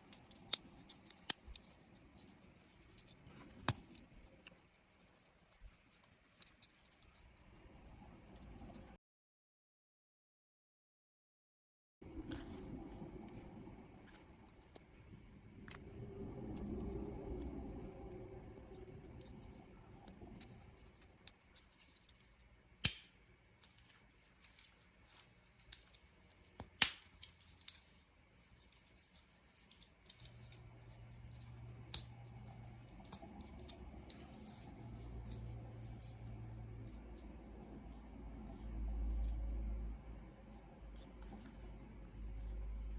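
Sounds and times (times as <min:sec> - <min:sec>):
plastic parts clicking: 0:00.1 - 0:04.8.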